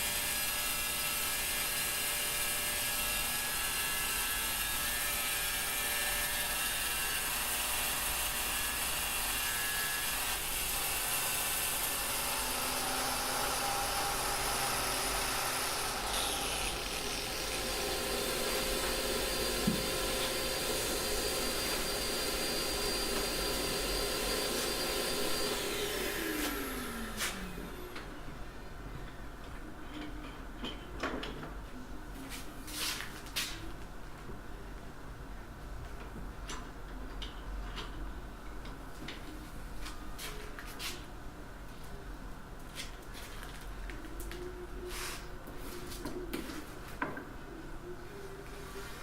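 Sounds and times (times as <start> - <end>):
power tool motor whining: 0.1 - 28.0.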